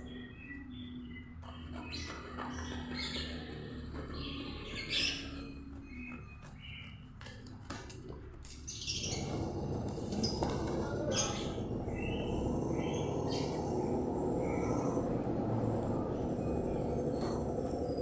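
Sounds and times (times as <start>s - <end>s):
birds chirping: 0.0s - 18.0s
steady low noise: 9.0s - 18.0s.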